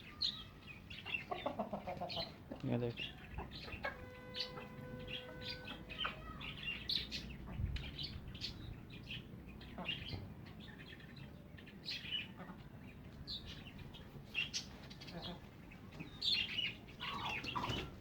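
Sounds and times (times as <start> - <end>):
flock of birds chirping: 0.0 - 18.0.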